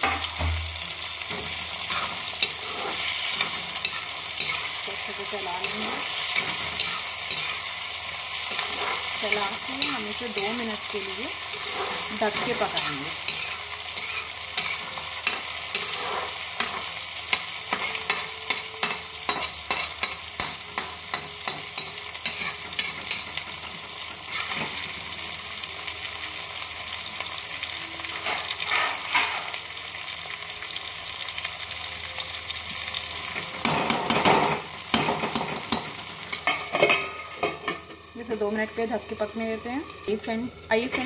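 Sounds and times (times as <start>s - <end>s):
vegetables sizzling in oil: 0.0s - 41.0s
steel spatula scraping a pan: 1.3s - 25.1s, 28.0s - 29.6s.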